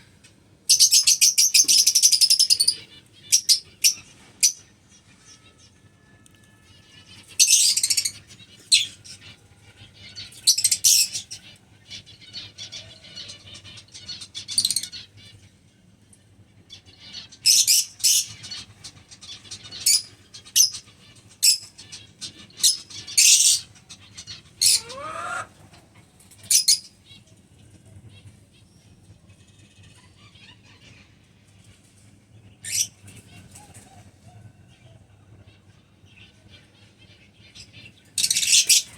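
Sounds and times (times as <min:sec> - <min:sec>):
lovebirds chirping shrilly: 0:06.8 - 0:09.4, 0:17.1 - 0:25.5, 0:38.2 - 0:38.9
bird squealing: 0:24.6 - 0:25.6.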